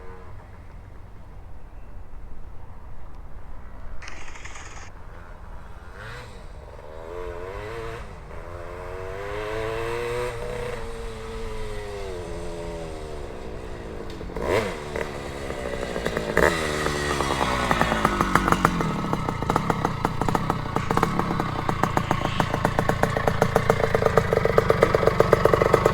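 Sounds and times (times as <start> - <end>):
two-stroke motorcycle engine: 6.0 - 25.9.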